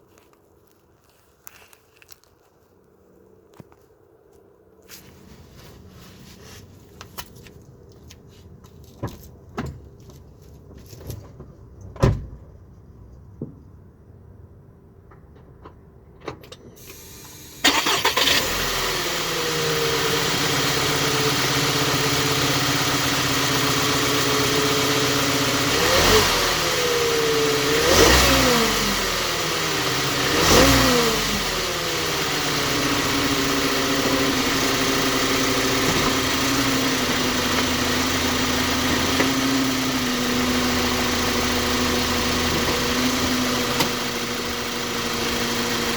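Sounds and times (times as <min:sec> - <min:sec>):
car engine starting and idling: 0:05.0 - 0:45.9
car engine revving: 0:16.8 - 0:45.9.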